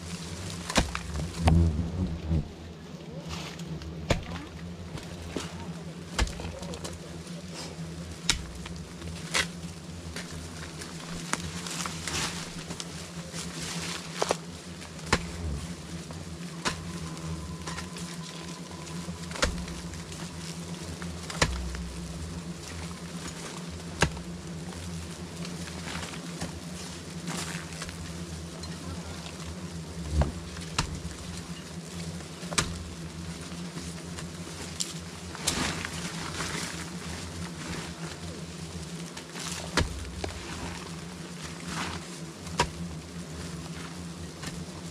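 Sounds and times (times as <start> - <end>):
bees buzzing: 0.0 - 44.9.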